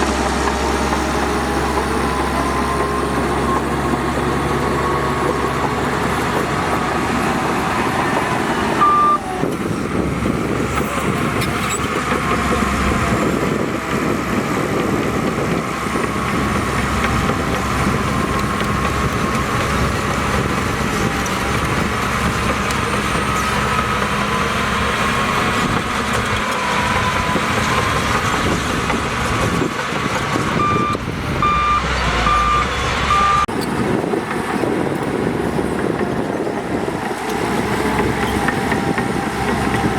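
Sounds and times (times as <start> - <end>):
diesel machinery running: 0.0 - 39.9
reversing alarm beeping: 8.6 - 9.4, 30.6 - 33.5.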